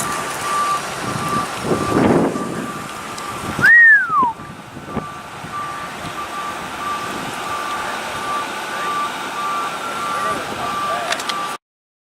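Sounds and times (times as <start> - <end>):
wind noise: 0.0 - 7.6
street noise: 0.0 - 11.6
vehicle backup alarm beeping: 0.0 - 11.6
loud whistle-like tone: 3.6 - 4.4.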